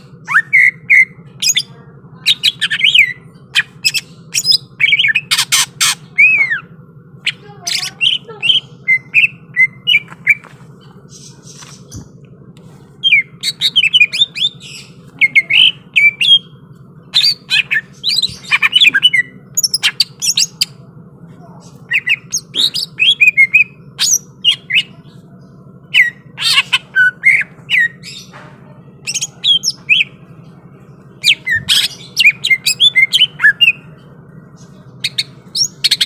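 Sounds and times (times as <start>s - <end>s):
bird singing chirps and whistles: 0.2s - 1.6s, 7.3s - 10.4s, 13.0s - 16.5s, 21.9s - 24.9s, 31.2s - 33.9s.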